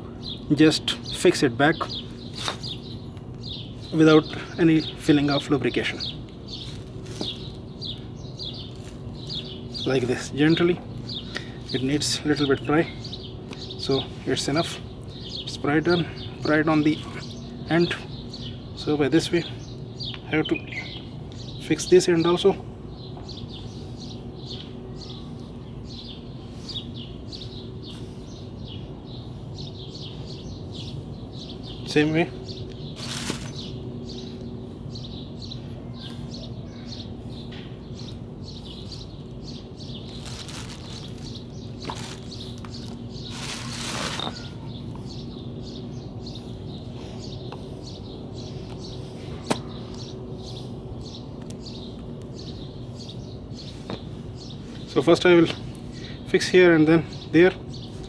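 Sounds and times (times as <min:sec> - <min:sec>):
low background hum: 0:00.0 - 0:58.0
small birds chirping: 0:00.0 - 0:58.0
scraping rustle: 0:06.5 - 0:07.6, 0:32.9 - 0:33.8, 0:39.9 - 0:44.6.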